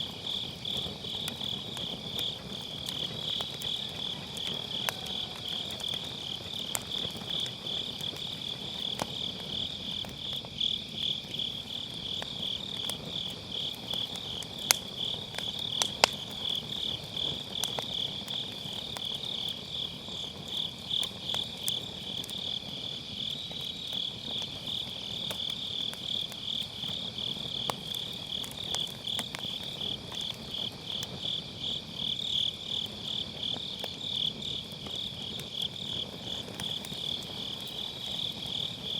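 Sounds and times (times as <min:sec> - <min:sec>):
crickets chirping: 0:00.0 - 0:38.9
fire popping: 0:00.0 - 0:38.9
wood fire crackling: 0:00.0 - 0:38.9.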